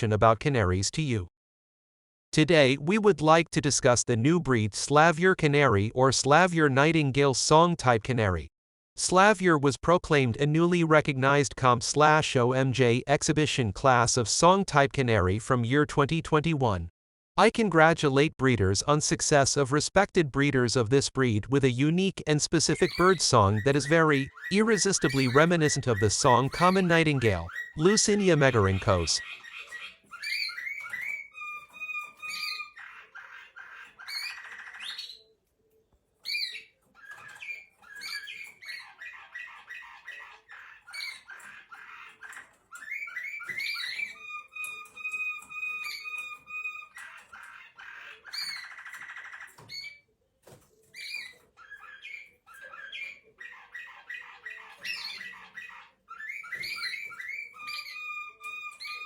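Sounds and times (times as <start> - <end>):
canary singing trills and whistles: 22.7 - 35.4, 36.2 - 59.0.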